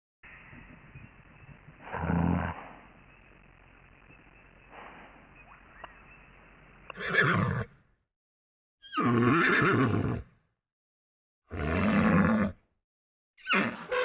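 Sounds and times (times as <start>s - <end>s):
horse neighing: 1.8s - 2.8s, 6.9s - 7.7s, 8.8s - 10.3s, 13.4s - 14.0s.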